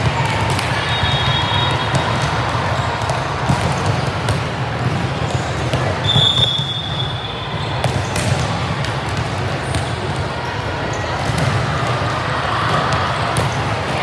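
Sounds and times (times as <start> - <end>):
ball bouncing on gym court: 0.0 - 14.0
murmur of voices: 0.0 - 14.0
shoe squeak: 6.0 - 8.2.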